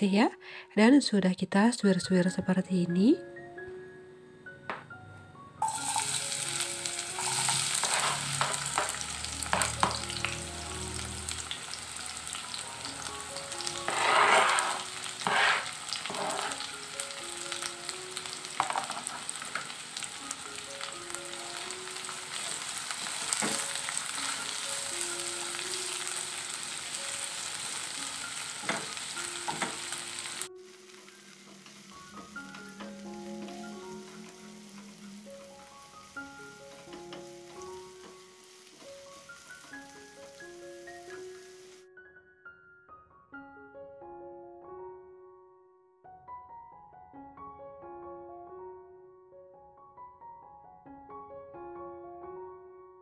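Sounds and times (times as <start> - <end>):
vegetables sizzling in hot oil: 5.6 - 41.8
spatula stirring in wok: 7.1 - 10.0, 13.6 - 16.7.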